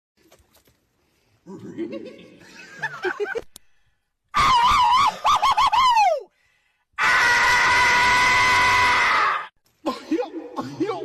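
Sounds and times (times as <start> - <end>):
high warbling cartoon scream: 4.4 - 6.2, 7.0 - 9.5.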